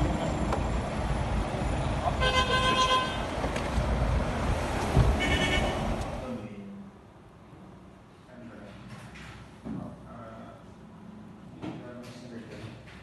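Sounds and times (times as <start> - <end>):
road traffic rumble: 0.0 - 8.4
car horn: 2.1 - 3.3, 5.1 - 5.9
high-pitched horn beep: 5.2 - 5.8.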